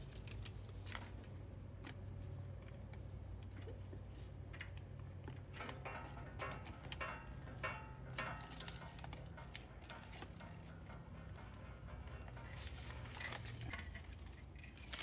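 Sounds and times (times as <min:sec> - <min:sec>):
steady low hum: 0:00.0 - 0:15.0
tape rustling and crinkling: 0:08.2 - 0:15.0.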